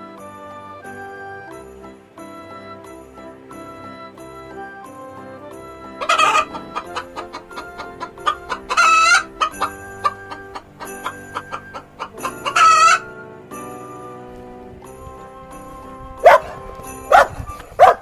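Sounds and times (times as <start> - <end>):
background music: 0.0 - 18.0
chicken squawking: 6.0 - 13.1
chickens clucking: 6.0 - 13.2.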